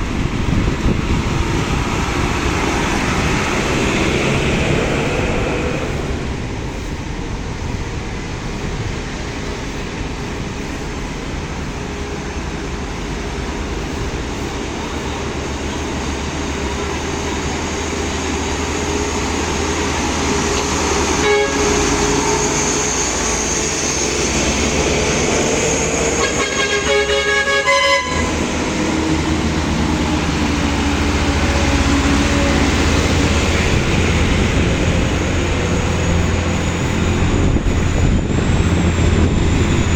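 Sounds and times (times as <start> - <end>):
road traffic engines: 0.0 - 39.9
car horn short toots: 21.2 - 22.3, 26.2 - 28.4.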